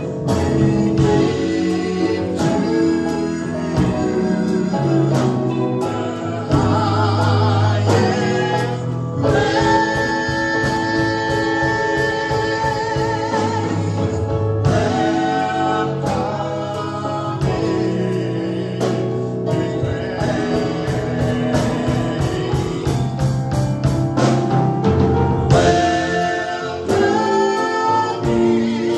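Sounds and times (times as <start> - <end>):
choir singing: 0.0 - 23.8, 25.5 - 28.9
bass line: 0.0 - 28.9
steady drum beat: 0.0 - 28.9.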